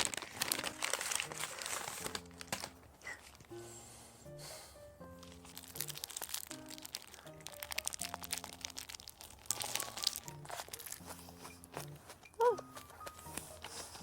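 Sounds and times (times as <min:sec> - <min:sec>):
paper wrapper crinkling: 0:00.0 - 0:03.6, 0:05.2 - 0:14.0
light background music: 0:00.0 - 0:14.0
crunching while eating: 0:05.2 - 0:14.0.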